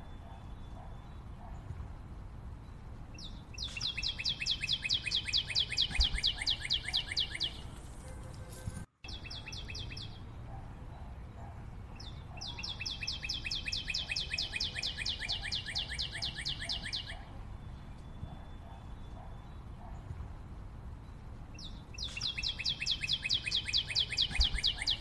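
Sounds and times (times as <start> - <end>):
songbird sharp downward chirps: 3.2 - 7.7, 12.0 - 19.6, 21.6 - 25.0.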